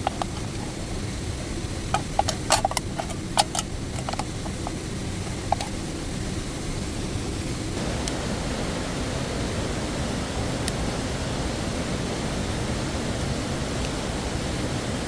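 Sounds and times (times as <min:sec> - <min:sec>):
sharp pops and clicks: 0:00.0 - 0:00.8, 0:01.9 - 0:05.9
water rushing: 0:00.0 - 0:15.0
waterfall rushing: 0:07.8 - 0:15.0.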